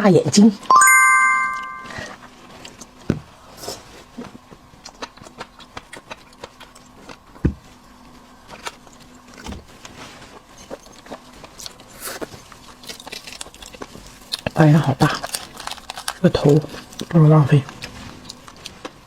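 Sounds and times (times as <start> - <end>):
shrimp shell clicks and crackles: 12.9 - 17.2.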